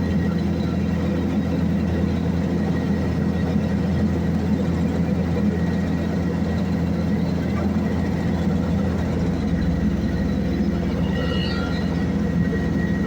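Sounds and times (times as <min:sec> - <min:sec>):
heavy engine droning: 0:00.0 - 0:13.0
faint high whine: 0:05.5 - 0:13.0.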